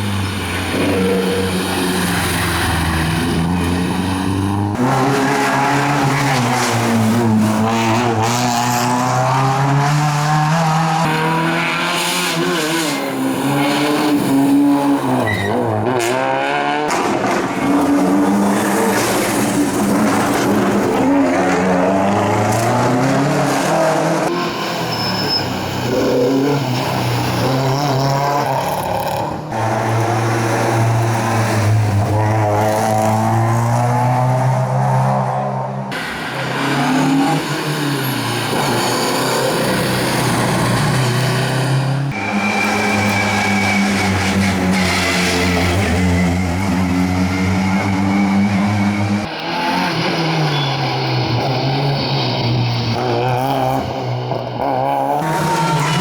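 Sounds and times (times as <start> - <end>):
rally car engine at high revs: 0.0 - 25.0, 25.7 - 56.0.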